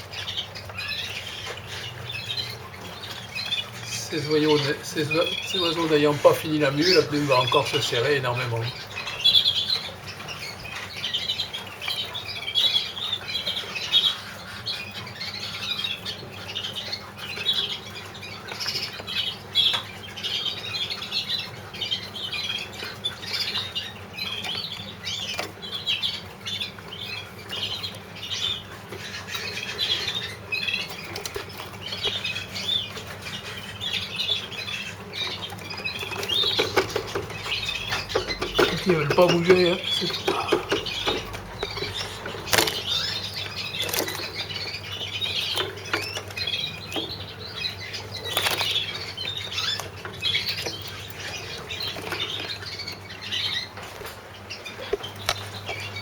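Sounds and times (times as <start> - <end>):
canaries calling: 0.0 - 56.0
light clicks in cages: 35.0 - 56.0.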